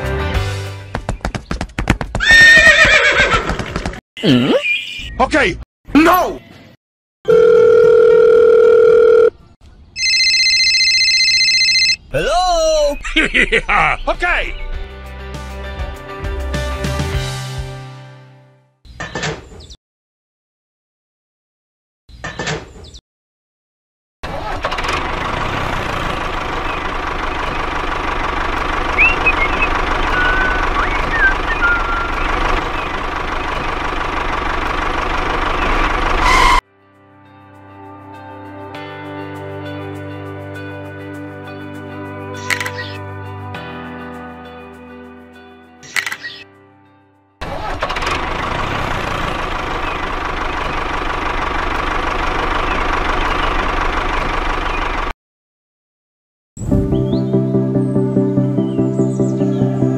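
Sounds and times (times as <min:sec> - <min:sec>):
tractor engine idling: 0:24.7 - 0:36.6, 0:47.8 - 0:55.1
short high chirps: 0:29.0 - 0:32.3.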